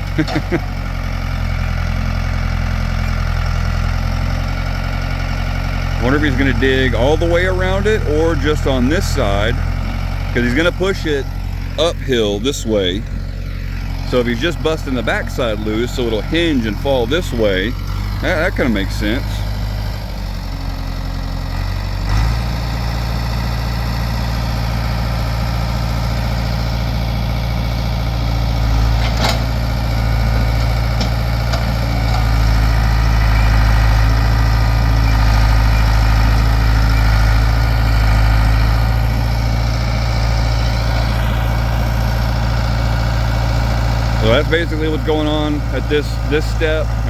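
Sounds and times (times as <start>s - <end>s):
backhoe engine running: 0.0s - 47.0s.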